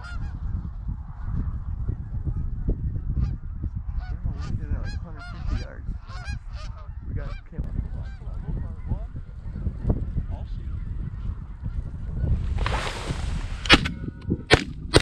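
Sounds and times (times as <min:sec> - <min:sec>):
wind rumble on microphone: 0:00.0 - 0:15.0
geese honking: 0:04.0 - 0:07.4.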